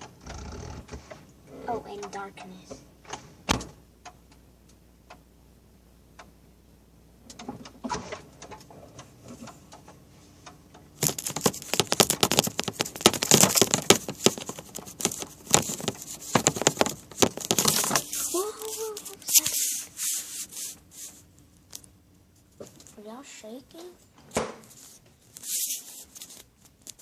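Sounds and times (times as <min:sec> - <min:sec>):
faint clicks and rustles: 0:07.2 - 0:27.0
objects being handled: 0:11.0 - 0:23.0, 0:24.2 - 0:27.0.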